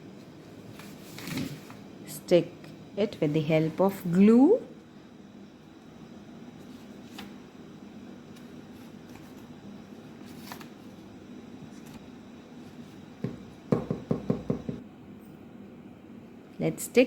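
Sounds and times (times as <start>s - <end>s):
paper rustling: 0.7s - 1.8s, 6.6s - 7.4s, 10.2s - 10.9s
low knocks on paper: 13.2s - 14.8s.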